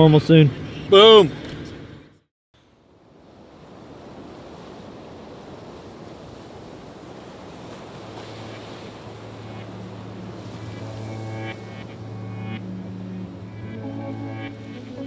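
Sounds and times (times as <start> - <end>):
steady rushing noise: 7.7 - 15.0
music with low held note: 9.1 - 15.0.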